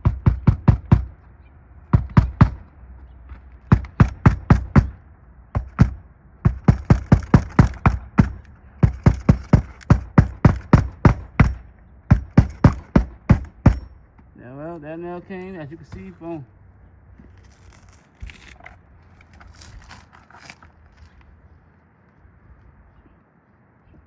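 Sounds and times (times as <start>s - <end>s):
hammer striking roofing nail: 0.0s - 1.2s, 1.9s - 2.7s, 3.6s - 14.0s.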